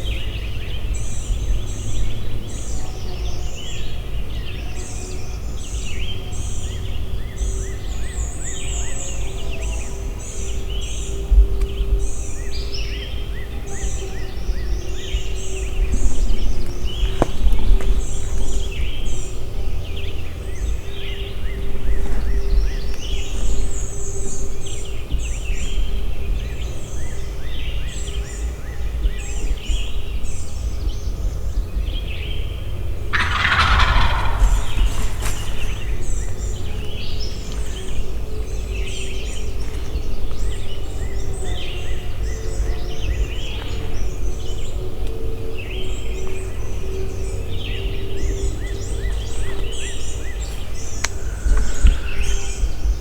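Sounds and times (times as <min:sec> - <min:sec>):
songbirds chirping: 0:00.0 - 0:53.0
turkey gobbling: 0:33.1 - 0:36.6
low rumble: 0:33.1 - 0:37.7.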